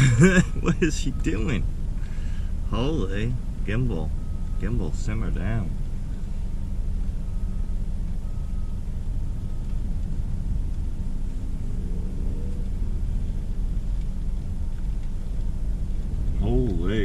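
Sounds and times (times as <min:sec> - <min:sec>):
storm wind rumble: 0:05.7 - 0:16.9.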